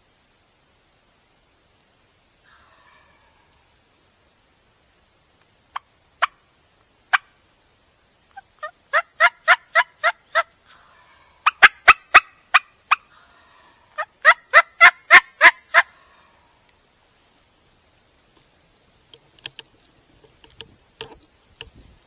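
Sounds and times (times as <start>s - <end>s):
turkey yelps: 2.4s - 3.7s, 8.4s - 16.6s.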